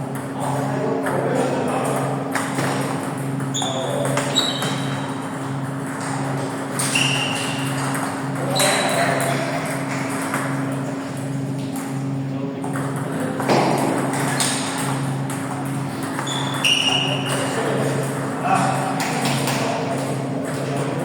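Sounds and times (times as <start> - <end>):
short high squeaks: 3.5 - 5.2, 6.8 - 7.8, 16.2 - 17.5.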